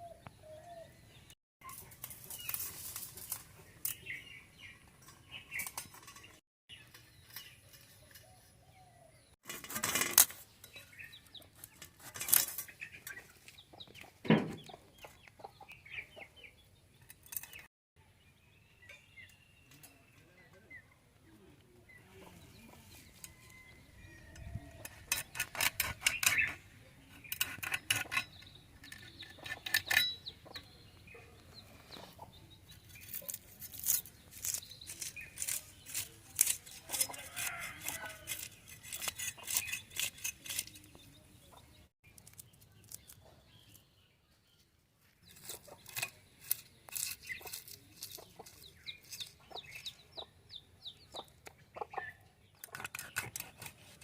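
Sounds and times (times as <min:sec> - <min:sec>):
chickens clucking: 0:12.5 - 0:17.2, 0:28.0 - 0:33.3, 0:47.2 - 0:54.0.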